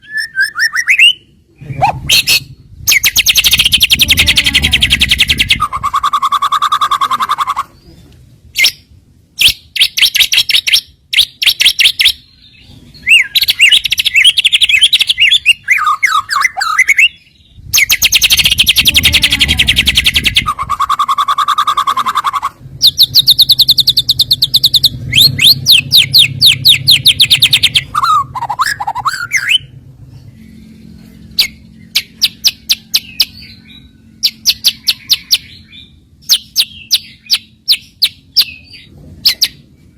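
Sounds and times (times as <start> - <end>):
bird singing chattering trills: 0.0 - 8.0, 8.6 - 39.6.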